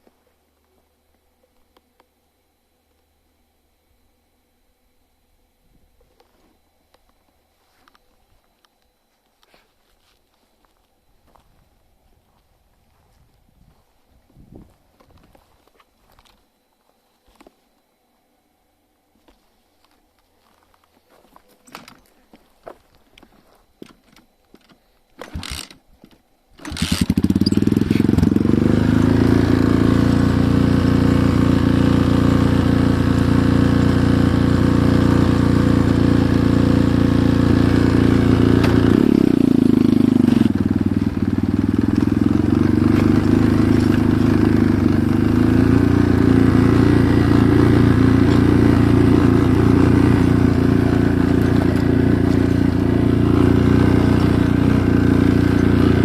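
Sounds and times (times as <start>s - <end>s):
motorcycle engine idling: 26.6s - 56.0s.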